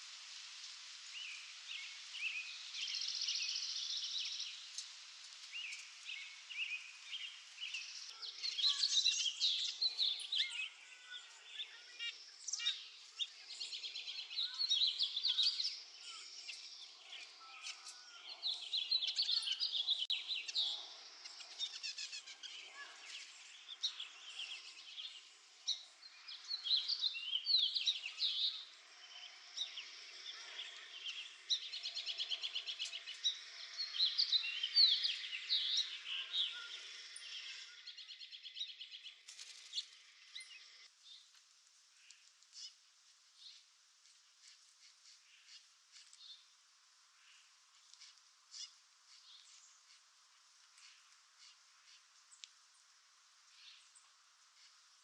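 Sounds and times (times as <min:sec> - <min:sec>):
birds chirping and calling: 0:05.7 - 0:40.9.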